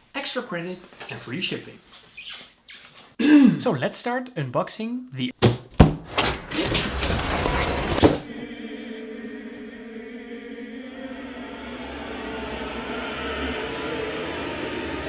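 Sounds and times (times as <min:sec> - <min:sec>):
choir-like music with held chords: 0:08.2 - 0:15.0.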